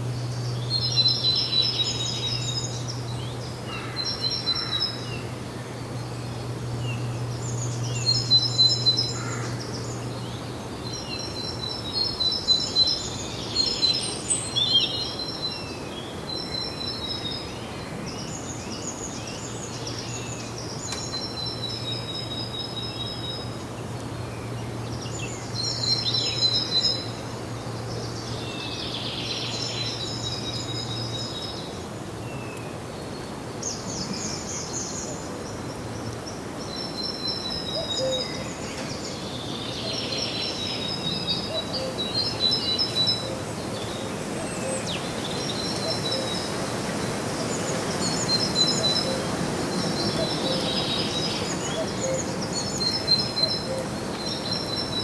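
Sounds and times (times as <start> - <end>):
songbirds chirping and singing: 0.0 - 55.0
background hiss: 24.8 - 55.0.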